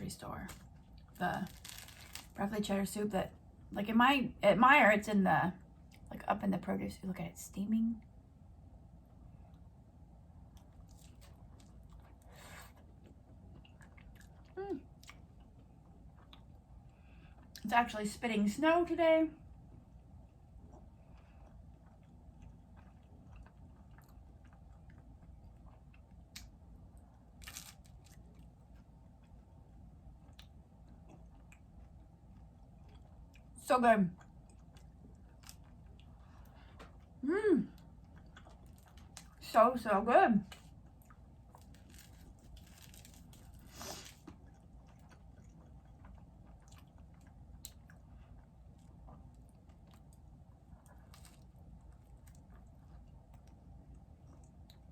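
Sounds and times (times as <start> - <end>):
low steady hum: 0.0 - 54.9
crunch: 0.4 - 2.4, 10.5 - 16.5, 27.2 - 29.4, 38.1 - 39.4, 40.5 - 53.6
person chewing food: 0.5 - 2.4, 10.4 - 17.6, 19.5 - 33.6, 34.2 - 39.4, 40.5 - 54.9.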